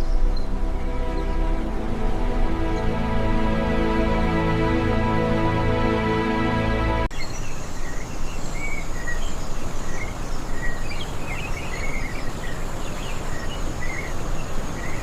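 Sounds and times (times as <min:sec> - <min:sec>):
music track: 0:00.0 - 0:07.1
small birds chirping: 0:07.1 - 0:15.0.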